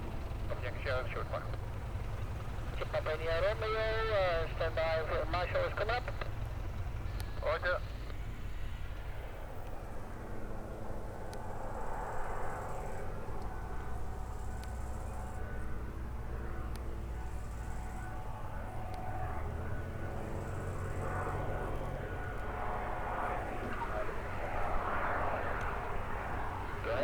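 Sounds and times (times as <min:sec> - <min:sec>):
faint steady whine: 0:00.0 - 0:27.0
propeller aircraft engine droning: 0:00.0 - 0:27.0.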